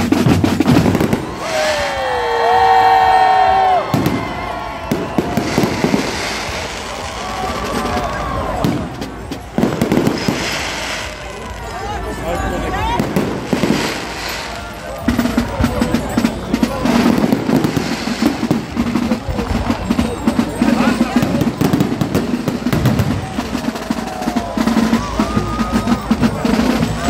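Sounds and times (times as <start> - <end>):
band music with drums: 0.0 - 27.0
crowd chatter: 0.0 - 27.0
fireworks cracking and banging: 0.0 - 27.0.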